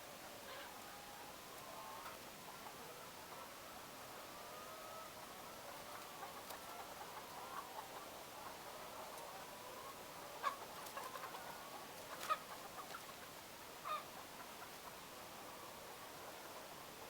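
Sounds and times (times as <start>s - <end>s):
hens clucking: 0.5s - 13.2s.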